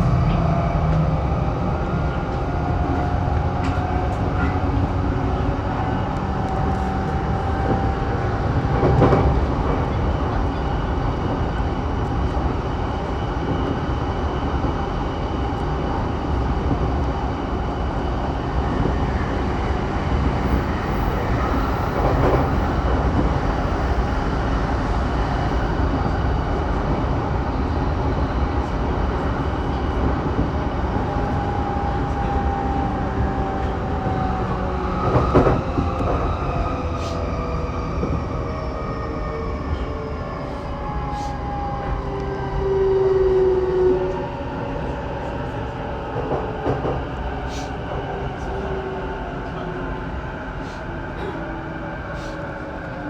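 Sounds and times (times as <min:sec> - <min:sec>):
wheels rumbling on rail: 0:00.0 - 0:53.0.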